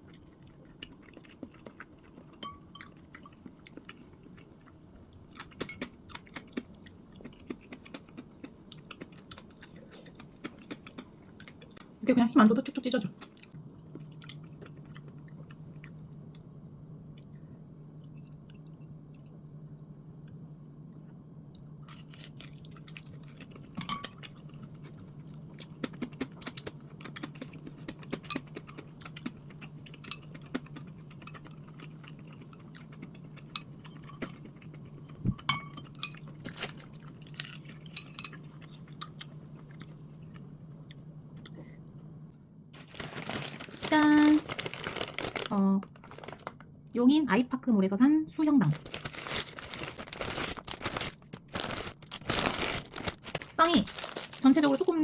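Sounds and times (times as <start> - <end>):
person chewing: 0.0 - 11.9, 21.8 - 35.2
low electrical hum: 0.0 - 55.0.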